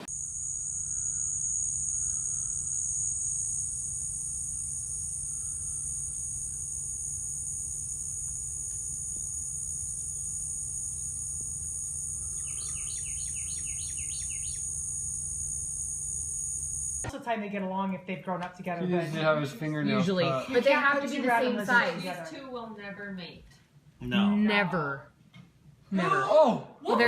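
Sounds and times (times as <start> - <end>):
high-pitched insect trill: 0.0 - 17.1
bird chirping: 12.2 - 14.9.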